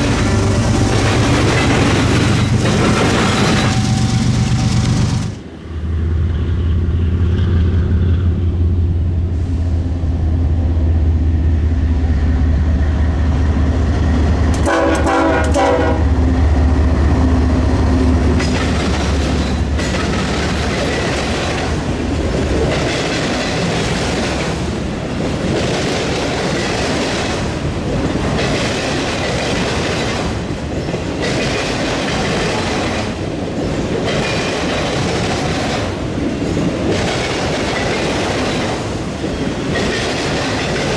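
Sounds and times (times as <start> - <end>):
train horn blast: 0.0 - 2.4, 3.2 - 5.4, 14.6 - 16.3
train wheels clattering: 0.0 - 5.4, 14.4 - 16.0, 17.6 - 40.9
diesel locomotive engine drone: 0.0 - 40.9.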